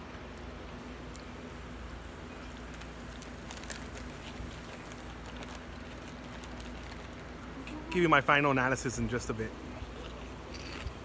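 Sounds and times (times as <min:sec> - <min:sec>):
crunching potato chips: 0:02.4 - 0:07.8, 0:10.0 - 0:11.0.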